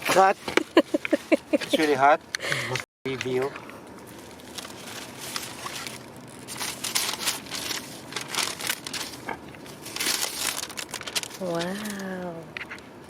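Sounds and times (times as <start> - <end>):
paper packaging crinkling: 4.0 - 12.8.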